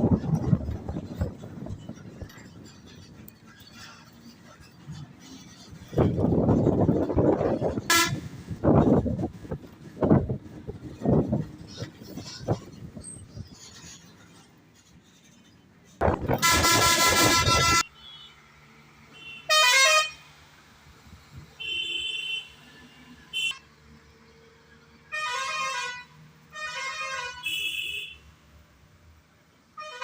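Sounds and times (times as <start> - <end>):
vehicle horns honking: 16.3 - 18.4, 19.1 - 20.2, 21.6 - 23.6, 25.1 - 28.2.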